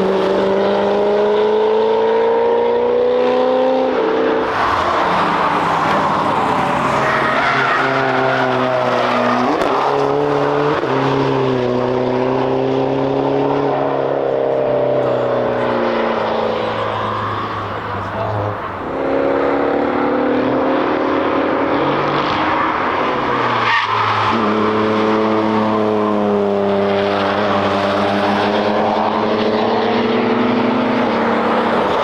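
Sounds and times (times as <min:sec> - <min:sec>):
car engine running hard: 0:00.0 - 0:32.0
tyre noise and squeal: 0:04.4 - 0:10.8, 0:21.8 - 0:26.0.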